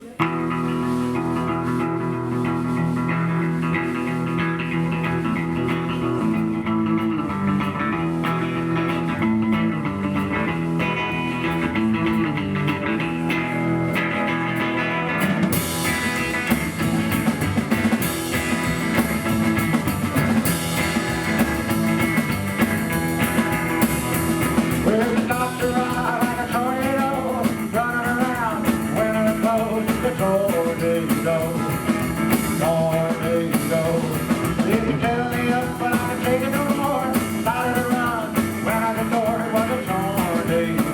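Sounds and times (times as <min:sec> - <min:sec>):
drums and cymbals: 0:00.0 - 0:40.9
electric guitar: 0:00.0 - 0:40.9
upright double bass: 0:00.0 - 0:40.9
man singing: 0:24.6 - 0:40.9.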